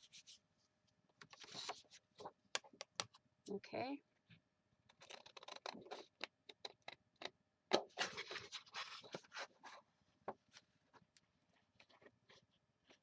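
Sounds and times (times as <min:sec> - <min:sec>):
paper rustling: 0:01.2 - 0:02.3, 0:08.0 - 0:09.8.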